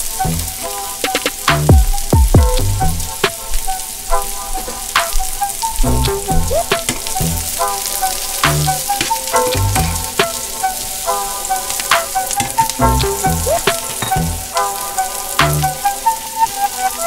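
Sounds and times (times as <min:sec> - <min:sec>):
mushrooms sizzling in a pan: 0:00.0 - 0:17.0
background music with bass beat: 0:00.2 - 0:03.4, 0:05.8 - 0:07.6, 0:08.4 - 0:10.4, 0:11.9 - 0:14.6, 0:15.4 - 0:15.9.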